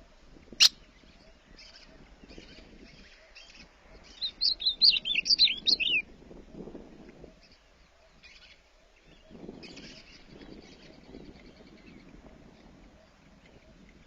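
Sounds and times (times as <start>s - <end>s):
songbird warbling: 3.4s - 6.0s.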